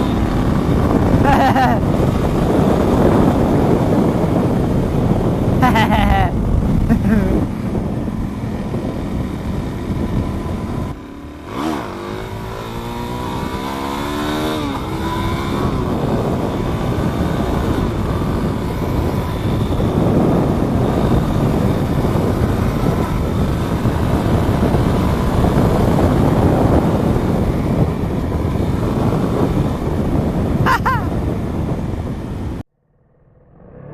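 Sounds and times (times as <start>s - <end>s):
motorcycle engine revving: 0.0s - 32.6s.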